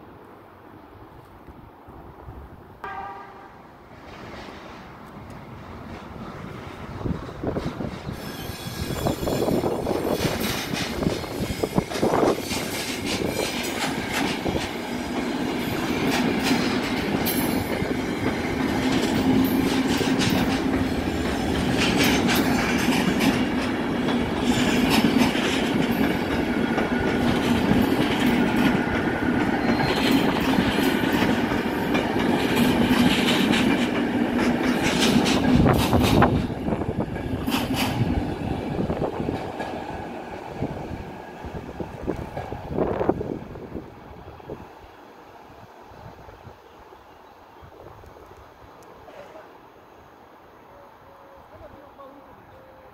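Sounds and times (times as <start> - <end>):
train rumble: 0.0 - 46.6
wheels clicking over rail joints: 4.0 - 43.1
faint wheel squeal: 8.2 - 9.8.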